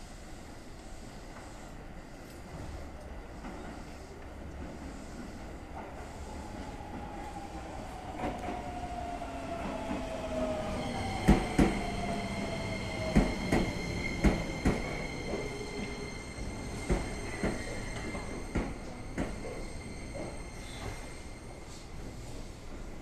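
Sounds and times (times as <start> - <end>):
high brake squeal: 19.4 - 21.8.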